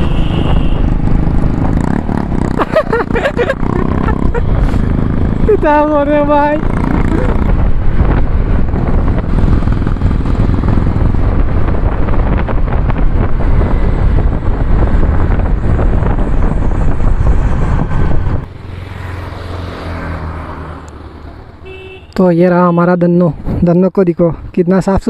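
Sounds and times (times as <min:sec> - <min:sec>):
motorcycle engine running: 0:00.0 - 0:18.7.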